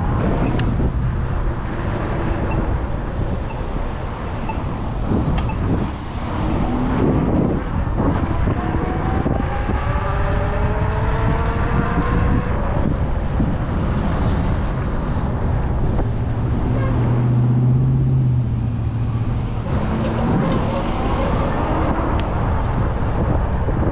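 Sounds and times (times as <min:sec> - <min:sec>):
road traffic passing: 0:00.0 - 0:23.9
wind on microphone: 0:00.0 - 0:23.9
vehicle engine revving: 0:04.6 - 0:23.4.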